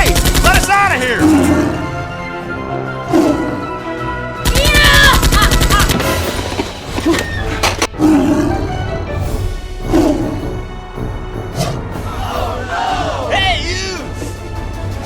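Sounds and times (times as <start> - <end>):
rapid automatic gunfire: 0.0 - 0.7, 4.4 - 5.9
background music: 0.0 - 15.0.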